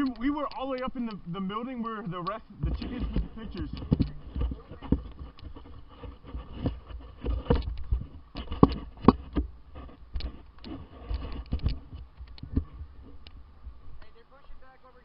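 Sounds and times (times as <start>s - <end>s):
sharp clicks and knocks: 2.1s - 13.4s.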